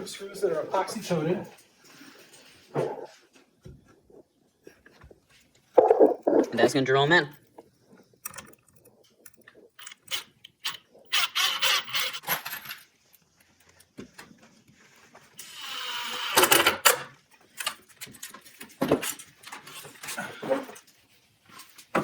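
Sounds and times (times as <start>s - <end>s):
screws and boards clattering: 8.2s - 13.0s, 16.2s - 20.9s
drill driving screws into wood: 9.8s - 12.3s, 15.4s - 17.0s.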